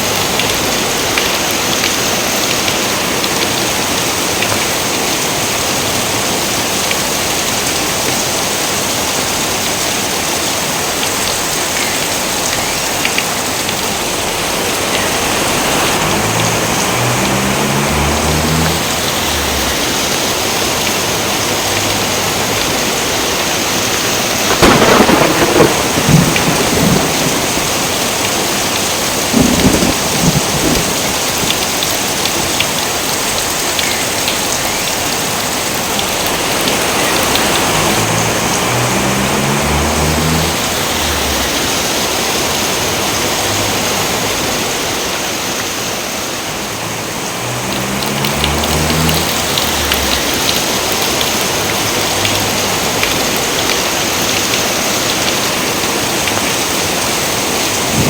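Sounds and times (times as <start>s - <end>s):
heavy rain: 0.0s - 58.0s
thunder clap: 24.3s - 31.8s, 57.8s - 58.0s.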